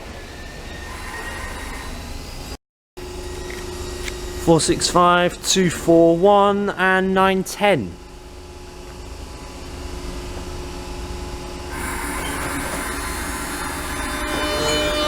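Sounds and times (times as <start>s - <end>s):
electric train running: 11.7s - 15.0s.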